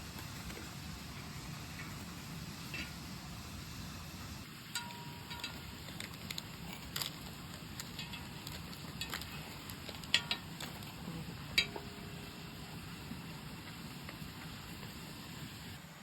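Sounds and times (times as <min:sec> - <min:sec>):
steady low hum: 0:00.0 - 0:16.0
utensils and dishes clinking: 0:04.6 - 0:12.2.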